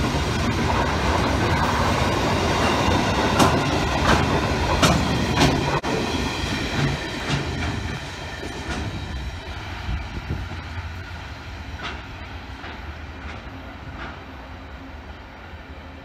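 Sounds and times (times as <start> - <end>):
freight train rumble: 0.0 - 16.0
wheel clacks over rail joints: 2.6 - 5.8, 6.7 - 9.0, 11.8 - 14.3.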